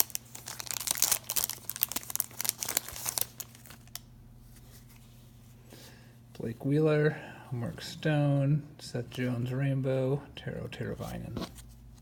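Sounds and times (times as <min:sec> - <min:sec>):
foil wrapper crinkling and tearing: 0:00.0 - 0:04.1
faint steady hum: 0:00.0 - 0:12.0.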